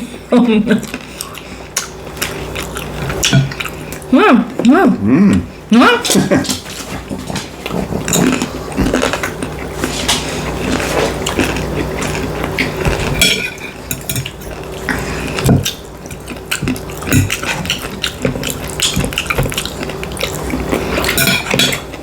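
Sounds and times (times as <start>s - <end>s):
cutlery clinking on a plate: 13.0s - 14.4s, 21.1s - 21.9s.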